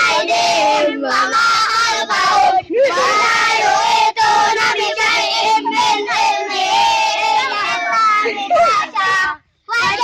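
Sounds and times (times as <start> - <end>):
children chanting: 0.0 - 10.0.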